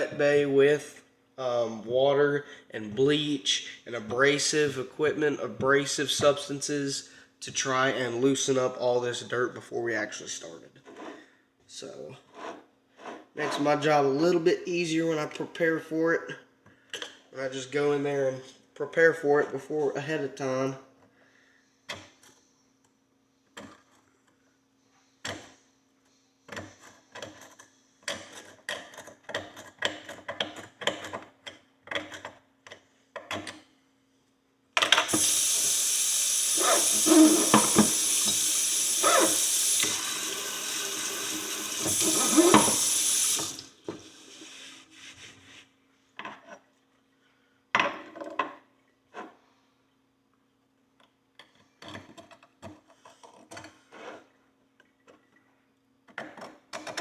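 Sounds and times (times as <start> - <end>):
kitchen tap running: 35.0 - 44.7
hand tools scraping metal: 36.6 - 38.4, 39.0 - 39.5, 41.8 - 42.9.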